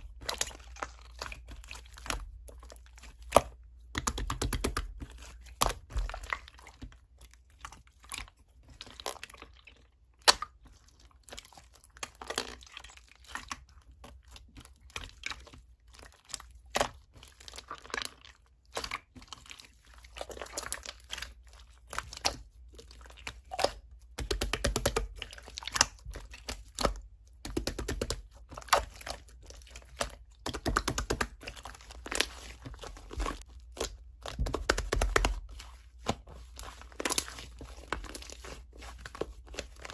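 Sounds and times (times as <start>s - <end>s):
slime squelching and popping: 0.0s - 39.9s.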